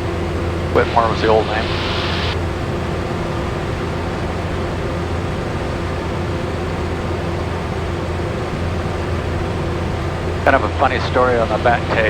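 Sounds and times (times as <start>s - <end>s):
light aircraft engine drone: 0.0s - 12.0s
air rushing noise: 0.6s - 2.5s.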